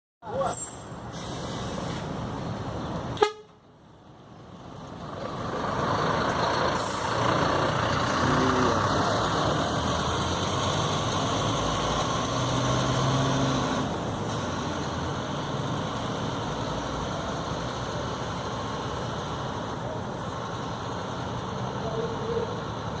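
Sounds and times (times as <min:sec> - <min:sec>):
low vehicle horn: 0:03.2 - 0:03.6.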